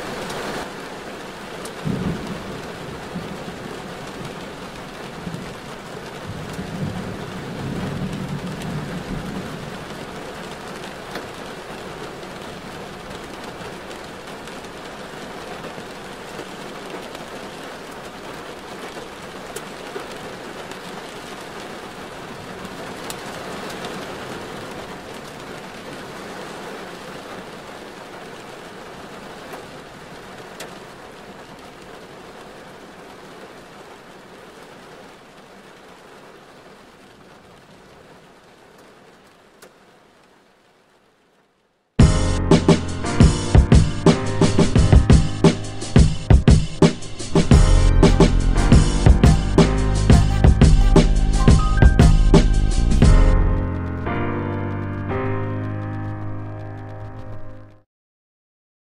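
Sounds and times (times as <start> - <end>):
rain on a car: 0.0 - 49.5, 50.1 - 57.8
wet road hiss: 42.6 - 53.1.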